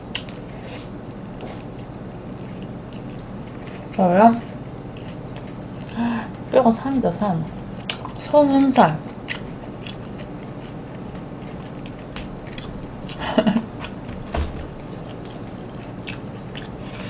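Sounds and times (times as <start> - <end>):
chewing fried chicken: 0.0 - 6.5, 7.4 - 14.1, 14.8 - 17.0
low thump: 14.0 - 14.9.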